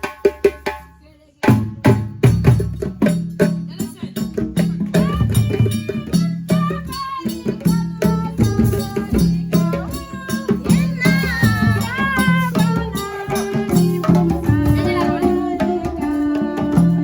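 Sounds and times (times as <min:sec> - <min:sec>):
drums in steady rhythm: 0:00.0 - 0:17.0
people singing: 0:03.7 - 0:17.0.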